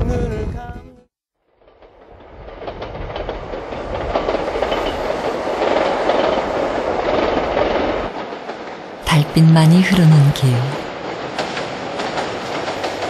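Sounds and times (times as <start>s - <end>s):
train wheels clattering: 1.6s - 9.0s, 10.9s - 13.0s.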